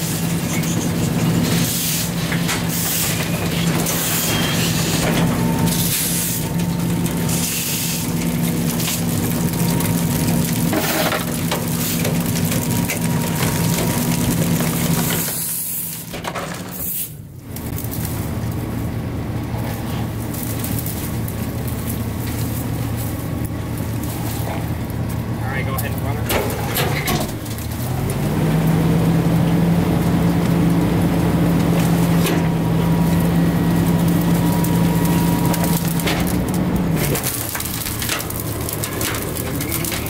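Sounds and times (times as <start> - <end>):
crunching and hissing: 0.0 - 40.0
garbage truck engine hum: 0.0 - 40.0.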